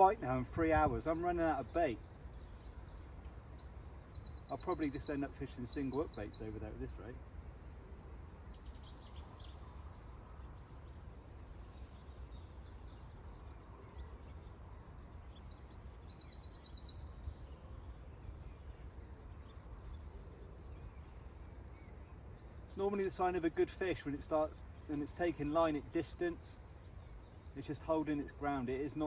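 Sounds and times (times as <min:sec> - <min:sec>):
wind rumble on microphone: 0:00.0 - 0:03.9
rapid bird trill: 0:01.0 - 0:07.0, 0:19.6 - 0:29.0
faint bird chirps: 0:01.0 - 0:29.0.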